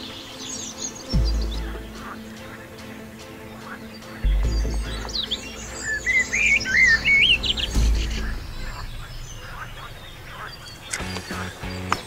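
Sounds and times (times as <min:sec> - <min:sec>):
low rumble: 0:01.2 - 0:12.0
songbird whistling notes: 0:03.8 - 0:12.0.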